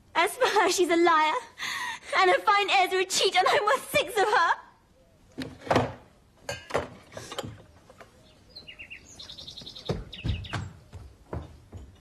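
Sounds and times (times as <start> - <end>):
small birds chirping: 7.2 - 11.8.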